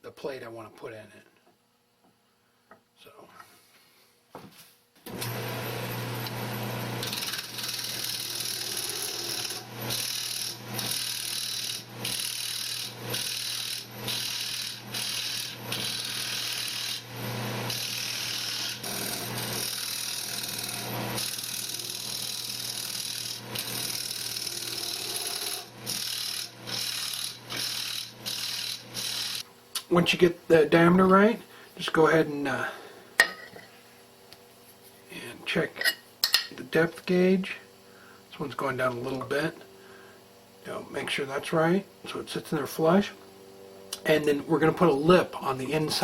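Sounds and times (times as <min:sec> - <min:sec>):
lathe motor hum: 0:05.1 - 0:29.4
lathe tool scraping wood: 0:05.1 - 0:29.4.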